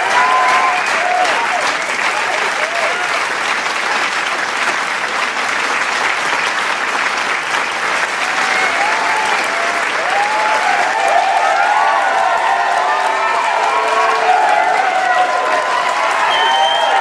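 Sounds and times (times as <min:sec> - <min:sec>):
cheering and whoops: 0:00.0 - 0:03.2, 0:08.1 - 0:17.0
crowd applauding: 0:00.0 - 0:17.0.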